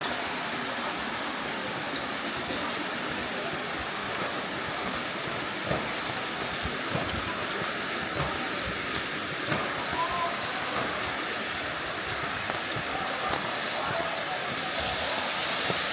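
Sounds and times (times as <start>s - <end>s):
water rushing: 0.0s - 15.9s.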